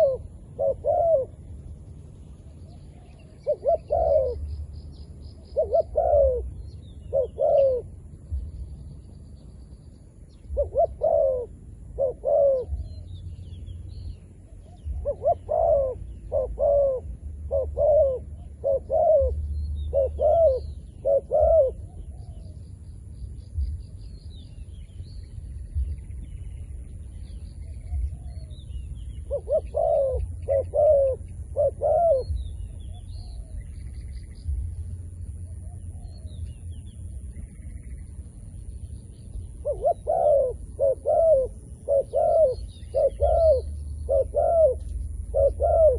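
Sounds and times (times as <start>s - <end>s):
dove cooing: 0.0s - 1.5s, 2.4s - 4.7s, 5.4s - 8.3s, 10.5s - 13.2s, 14.4s - 22.6s, 27.9s - 33.6s, 39.5s - 45.9s
low rumble: 0.0s - 45.9s.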